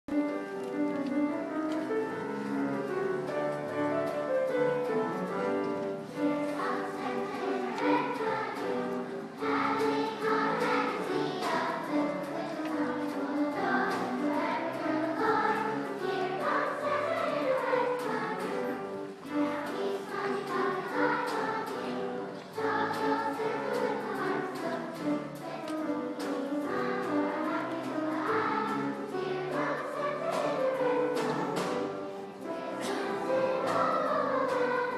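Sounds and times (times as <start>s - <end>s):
instrumental music: 0.1s - 34.9s
girls' choir singing in unison: 1.4s - 34.9s.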